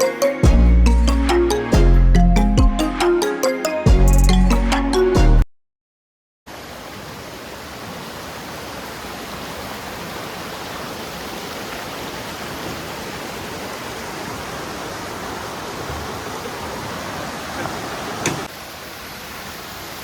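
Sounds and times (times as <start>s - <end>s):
waterfall rushing: 6.5s - 20.0s.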